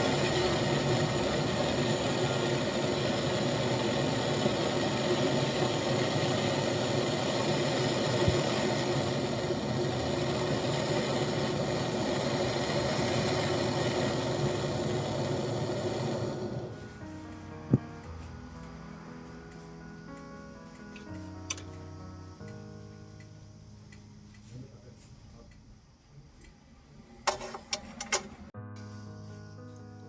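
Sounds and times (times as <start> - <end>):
machine humming with hiss: 0.0 - 21.6.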